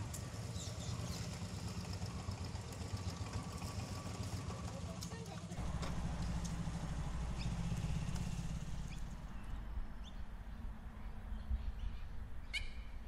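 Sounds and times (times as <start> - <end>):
motorcycle engine idling: 0.0 - 9.6
birds chirping: 0.1 - 4.6, 5.5 - 13.0.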